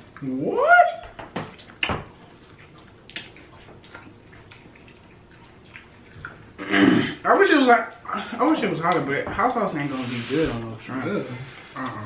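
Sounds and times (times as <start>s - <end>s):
chewing and lip-smacking: 0.0s - 0.4s, 1.4s - 6.6s.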